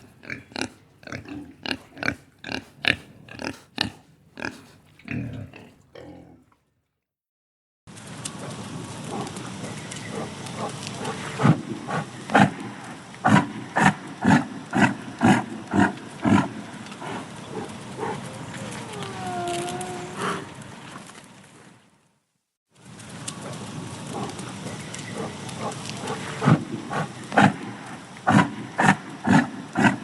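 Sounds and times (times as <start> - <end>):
hoofed animal calling: 0.0 - 5.9, 17.6 - 20.6.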